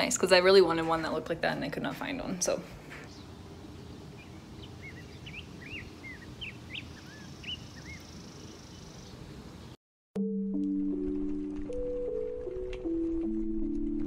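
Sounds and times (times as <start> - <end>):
low outdoor background noise: 0.0 - 9.8
small birds chirping: 2.9 - 9.8.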